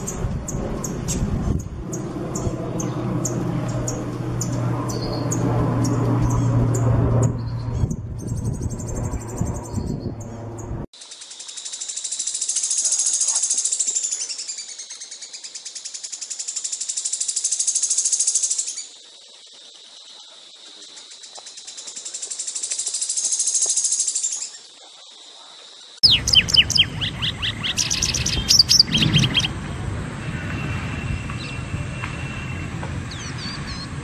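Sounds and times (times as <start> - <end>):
low hum: 0.0 - 10.9
songbird chirping: 0.0 - 29.8
fast high-pitched bird trill: 26.0 - 29.5.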